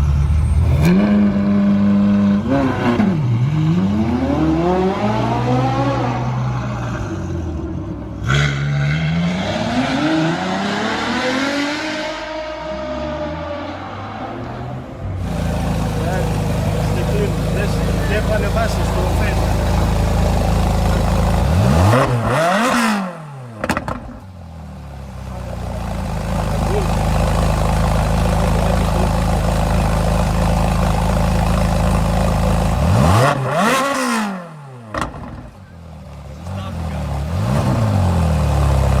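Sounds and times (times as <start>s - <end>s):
car engine revving hard: 0.6s - 7.0s, 8.2s - 14.2s, 15.2s - 24.1s, 26.0s - 35.4s, 36.5s - 39.0s
exhaust crack: 15.2s - 39.0s.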